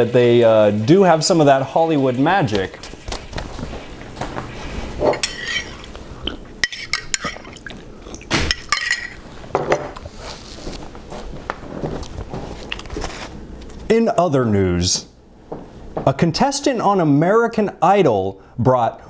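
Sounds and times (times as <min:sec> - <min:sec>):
metal spoon clinking on dish: 0:05.0 - 0:06.0, 0:06.6 - 0:07.8, 0:08.4 - 0:10.0.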